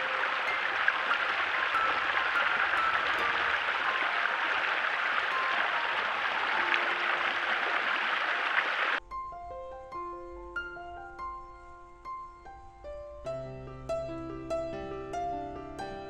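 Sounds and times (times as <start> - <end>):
running water rushing: 0.0 - 9.0
faint music tones: 0.0 - 16.0
piano music: 0.0 - 16.0.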